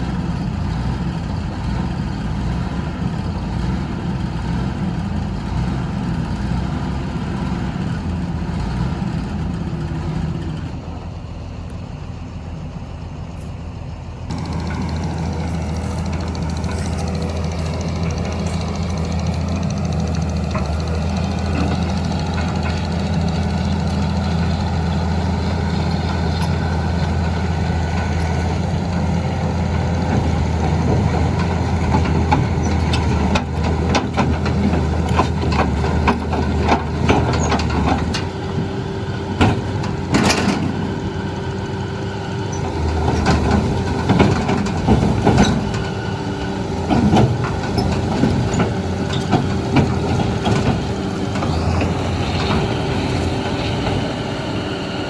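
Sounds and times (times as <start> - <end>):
diesel engine running: 0.0 - 55.0
metal clanks and knocks: 29.8 - 41.0, 42.5 - 46.0, 46.7 - 54.1.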